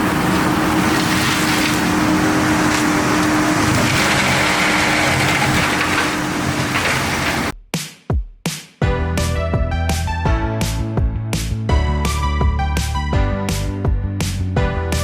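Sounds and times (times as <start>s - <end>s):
skid steer mulcher running: 0.0s - 7.5s.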